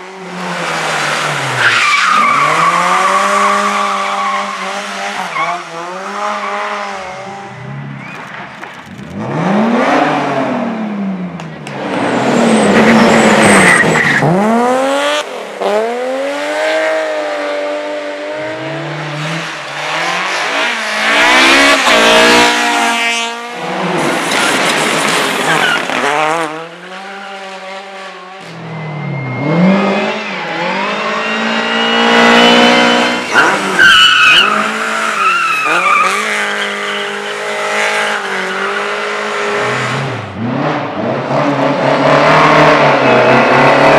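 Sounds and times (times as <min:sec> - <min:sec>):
race cars passing: 0:00.0 - 0:43.9
tyres squealing: 0:30.6 - 0:37.2.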